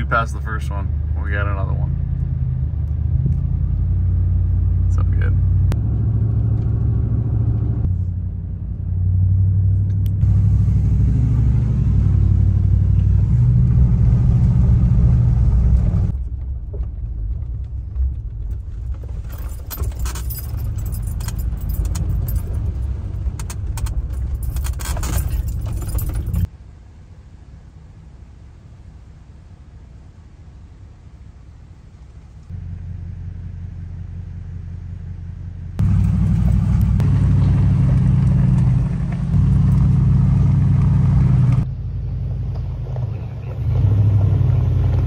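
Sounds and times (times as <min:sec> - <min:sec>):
car engine and tyres rumbling: 0:00.0 - 0:45.0
loose things rattling in cabin: 0:16.4 - 0:26.5.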